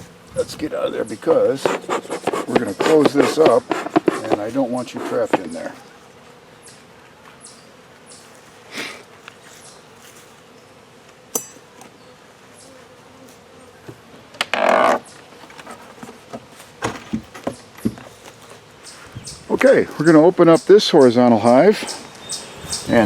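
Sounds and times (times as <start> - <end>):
honeybees buzzing: 0.0 - 23.0
knocks and clicks of hive parts: 1.6 - 4.6
loud scrape: 1.6 - 5.8.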